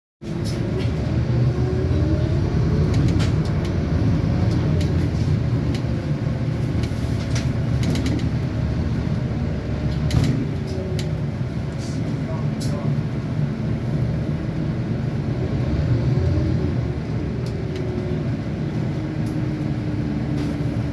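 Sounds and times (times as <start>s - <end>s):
bus diesel engine running: 0.2s - 20.9s.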